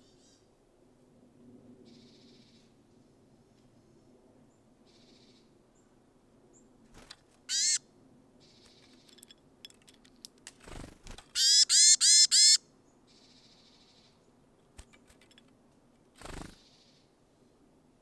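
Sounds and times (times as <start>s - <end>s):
harsh nasal bird call: 7.5s - 7.8s, 11.4s - 12.6s
soft high bird chirps: 7.5s - 7.8s.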